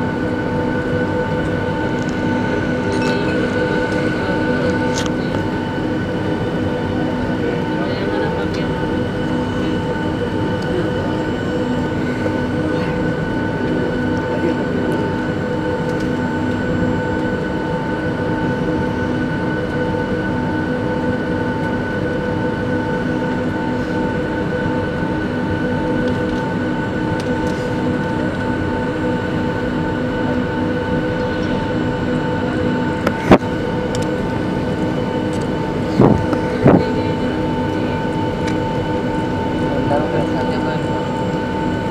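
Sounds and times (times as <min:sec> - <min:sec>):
jet engine whine: 0:00.0 - 0:41.9.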